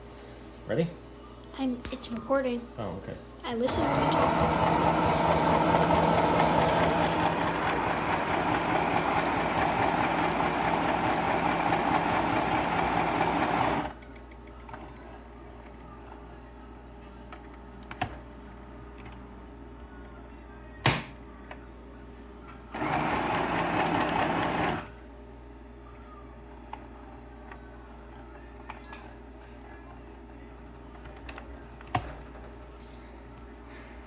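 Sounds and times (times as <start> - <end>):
electric sewing machine stitching: 3.7 - 14.0, 22.8 - 24.9.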